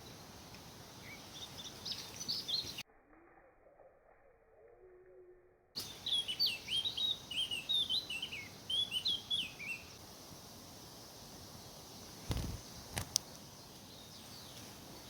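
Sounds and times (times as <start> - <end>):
songbird chirping: 0.0 - 2.9, 3.6 - 15.0
steady hiss: 5.8 - 15.0.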